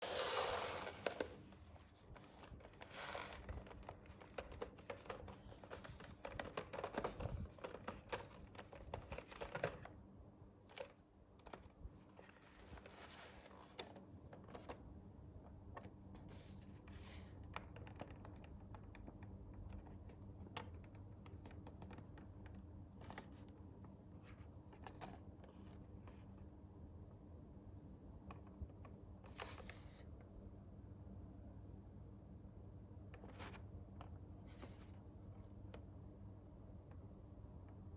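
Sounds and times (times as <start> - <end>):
toy packaging clicks and rustles: 2.1 - 9.8.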